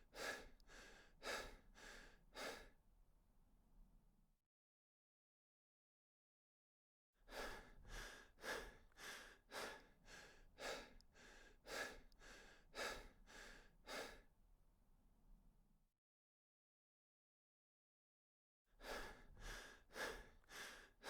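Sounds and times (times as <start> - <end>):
quick rhythmic breathing: 7.3 - 14.2, 18.8 - 21.0.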